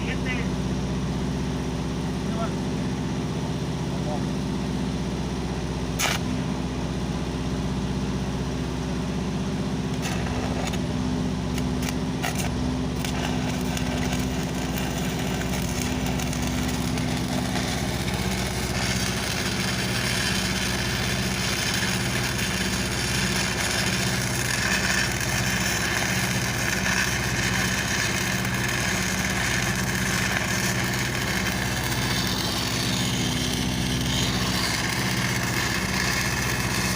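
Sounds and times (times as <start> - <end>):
welding machine engine running: 0.0 - 36.9
welding arc hissing crackle: 5.9 - 6.5, 9.7 - 36.9.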